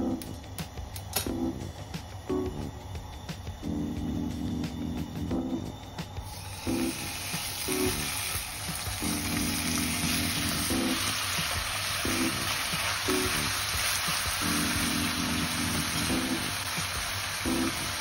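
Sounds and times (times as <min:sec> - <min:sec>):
background music: 0:00.0 - 0:18.0
food sizzling in a hot pan: 0:06.2 - 0:18.0.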